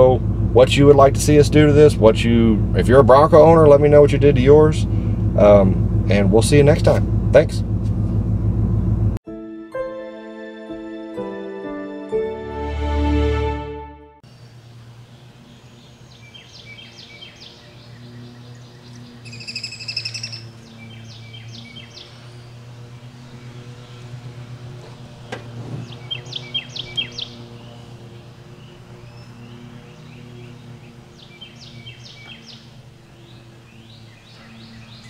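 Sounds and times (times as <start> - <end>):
steady low hum: 0.0 - 9.2
birds chirping: 14.2 - 35.0
buzzy bird call: 16.1 - 24.5, 25.8 - 35.0.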